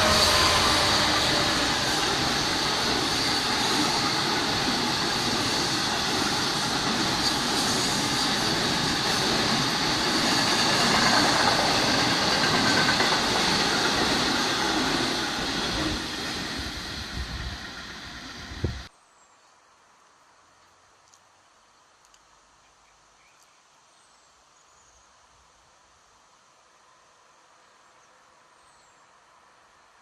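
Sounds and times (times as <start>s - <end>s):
freight train rumbling and rattling: 0.0s - 18.9s.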